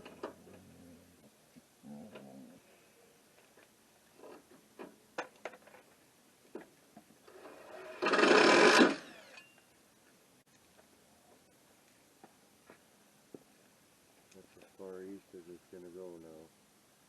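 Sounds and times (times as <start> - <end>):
small electric motor whirring: 7.3 - 9.5.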